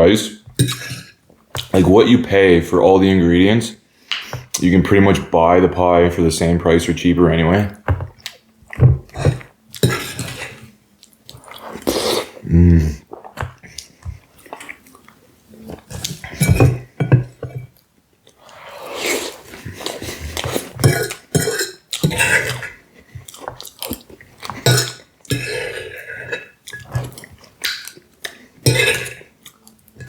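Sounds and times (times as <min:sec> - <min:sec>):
chewing and mouth noises: 0:13.1 - 0:16.3, 0:21.9 - 0:25.8, 0:29.4 - 0:30.0.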